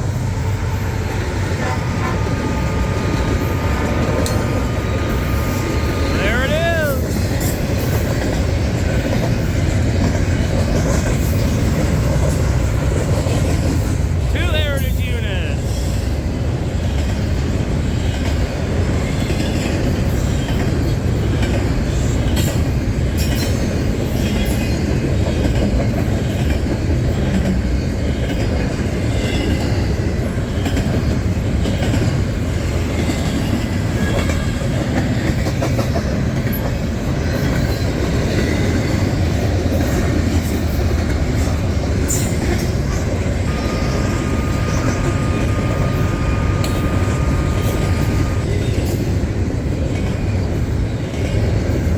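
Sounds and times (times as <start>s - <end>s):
wheels clicking over rail joints: 0.0s - 6.2s, 7.0s - 14.3s
freight train rumbling past: 0.0s - 51.9s.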